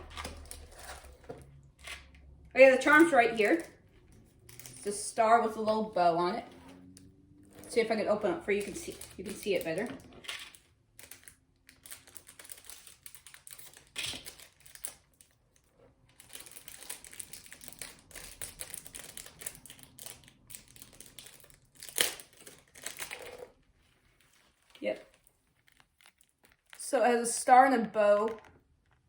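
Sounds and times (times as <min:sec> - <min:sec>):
plastic packaging crinkling: 0:00.0 - 0:02.3, 0:07.5 - 0:26.9.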